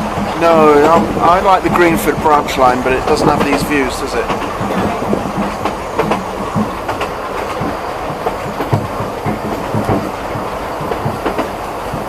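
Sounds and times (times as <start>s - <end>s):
steam train rumble and rattle: 0.0s - 12.0s
wheels clattering over rail joints: 0.0s - 12.0s.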